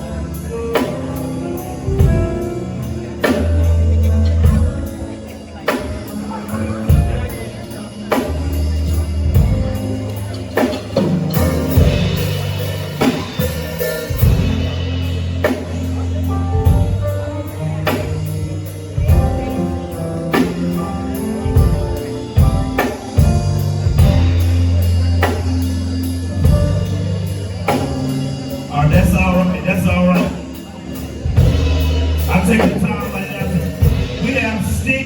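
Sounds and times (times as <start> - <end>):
deep bass guitar notes: 0.0 - 35.0
sustained keyboard chords: 0.0 - 35.0
drum kit hits: 8.1 - 35.0.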